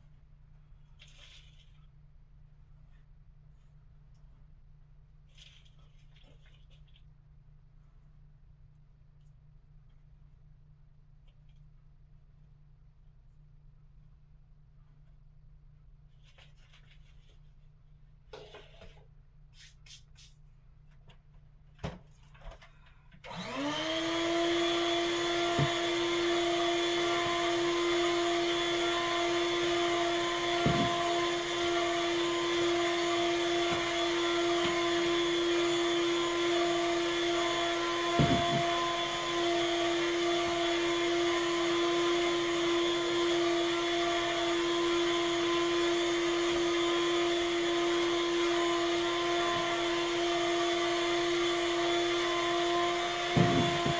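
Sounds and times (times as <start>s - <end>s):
vacuum cleaner running: 23.2s - 53.9s.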